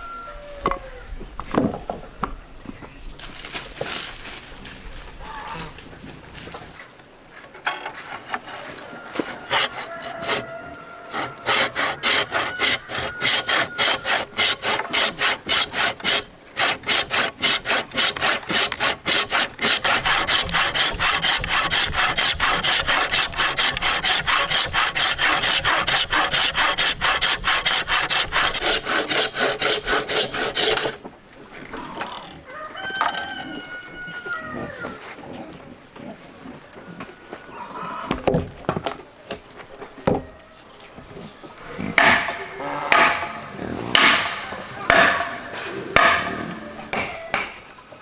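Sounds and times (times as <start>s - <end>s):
rooster crowing: 0.0s - 1.2s, 8.6s - 14.4s, 32.4s - 35.1s, 42.2s - 47.6s
hand saw cutting wood: 9.2s - 31.0s, 41.9s - 47.6s.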